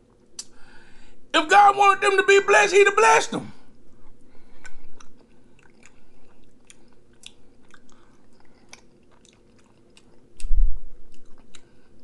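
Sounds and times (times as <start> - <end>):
person chewing food: 4.1 - 12.0.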